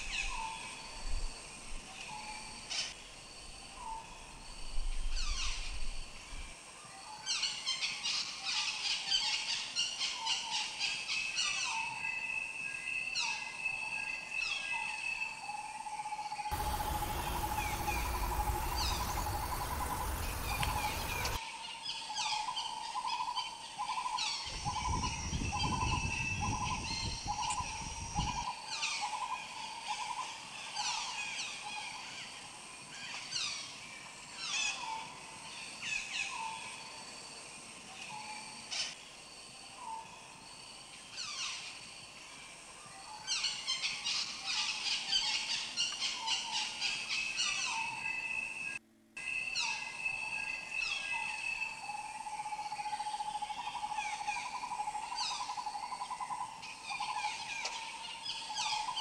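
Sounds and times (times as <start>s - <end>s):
downward-sweeping bird chirps: 16.5s - 21.4s
low rumbling noise bursts: 16.6s - 21.4s.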